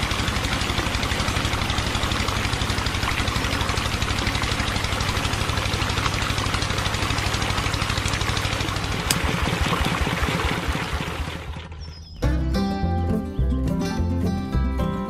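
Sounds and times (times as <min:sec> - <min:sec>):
water pump pumping water: 0:00.0 - 0:12.0
small engine chugging: 0:00.0 - 0:12.2.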